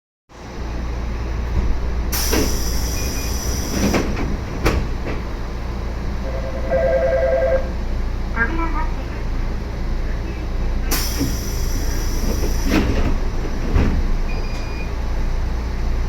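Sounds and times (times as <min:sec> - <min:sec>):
train low rumble: 0:00.3 - 0:16.0
pulsing two-note tone: 0:06.2 - 0:07.7.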